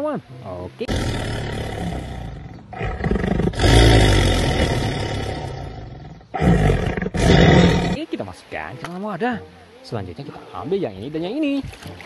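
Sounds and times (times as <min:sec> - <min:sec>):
panther snarling: 0:00.9 - 0:08.0.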